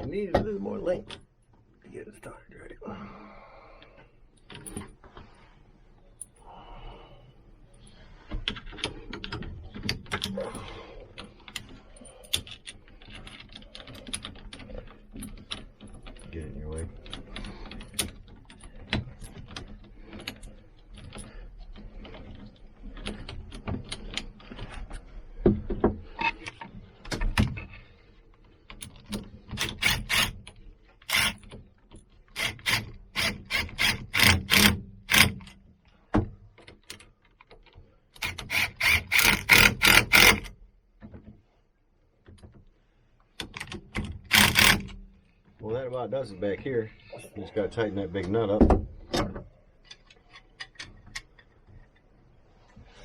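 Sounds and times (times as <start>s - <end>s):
ratchet wrench clicking: 29.5s - 30.4s, 31.0s - 31.4s, 32.3s - 35.5s, 38.2s - 40.5s, 44.3s - 45.0s.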